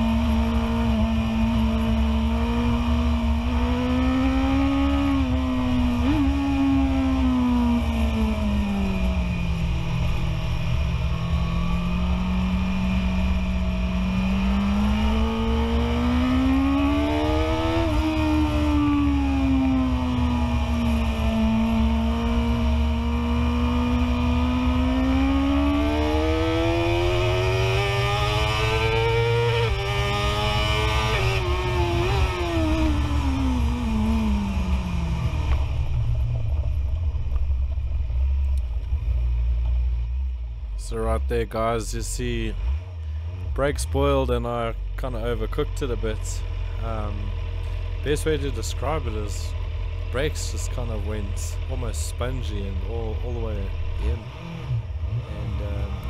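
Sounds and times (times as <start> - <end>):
low wind rumble: 0.0 - 56.0
motorcycle engine accelerating: 0.0 - 56.0
wind rumble: 31.4 - 40.8.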